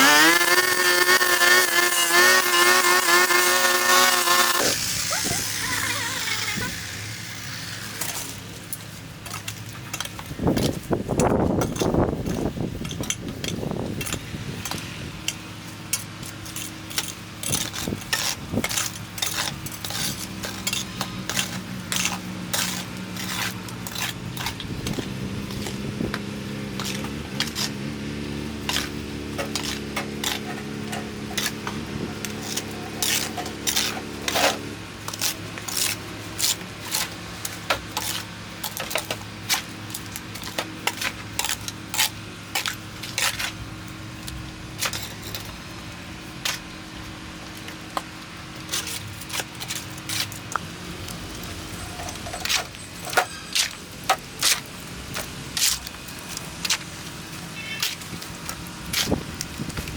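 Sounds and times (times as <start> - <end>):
clicks and clinks of hard objects: 8.0 - 27.8, 28.6 - 43.6, 47.4 - 59.9.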